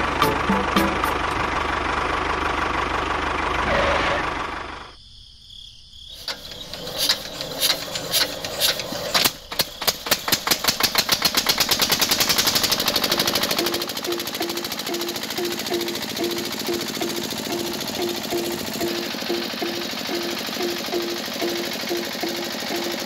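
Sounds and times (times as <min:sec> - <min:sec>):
diesel engine starting and chugging: 0:00.0 - 0:05.0, 0:06.1 - 0:23.0
steady running din: 0:11.8 - 0:23.0.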